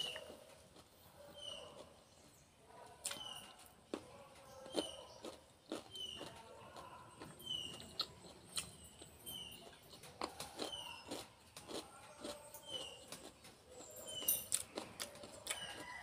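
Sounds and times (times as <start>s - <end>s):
bird chirping: 0.0s - 0.6s, 1.2s - 3.7s, 4.4s - 16.0s
crunchy food chewing: 0.0s - 16.0s.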